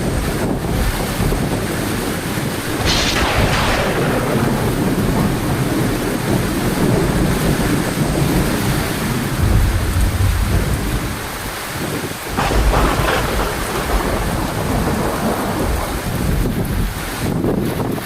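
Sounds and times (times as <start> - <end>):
heavy rain: 0.0 - 18.0
rolling thunder: 0.0 - 18.0.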